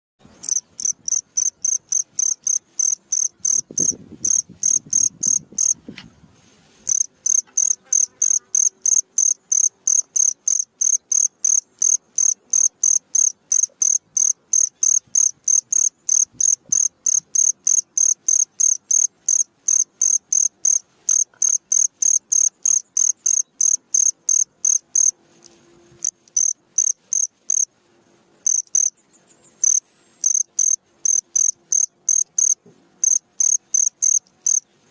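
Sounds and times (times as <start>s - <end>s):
cricket chirping: 0.4s - 5.8s, 6.9s - 25.1s, 26.0s - 27.7s, 28.4s - 29.0s, 29.6s - 34.6s.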